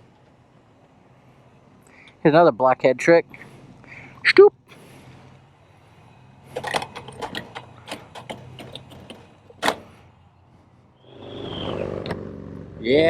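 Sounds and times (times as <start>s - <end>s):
mechanical clicks and knocks: 6.5s - 10.0s
rush of noise: 11.0s - 12.4s.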